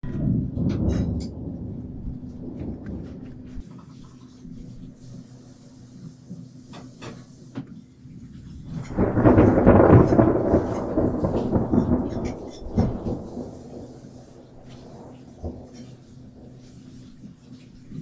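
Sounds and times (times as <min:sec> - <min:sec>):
thunder rumble: 0:00.0 - 0:03.7, 0:08.2 - 0:18.0
rainstorm: 0:00.0 - 0:18.0.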